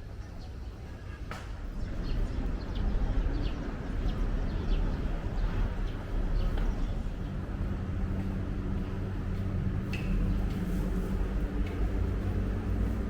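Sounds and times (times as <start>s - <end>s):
road traffic rumble: 0.0s - 13.0s
low engine hum: 1.6s - 13.0s.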